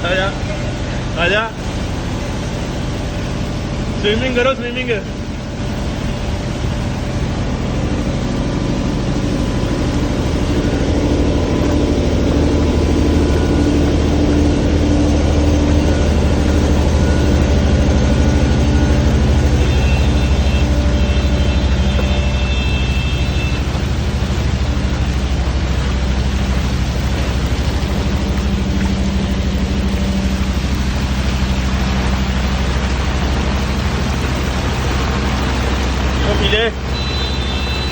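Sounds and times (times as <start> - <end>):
engine running steadily: 0.0 - 37.9.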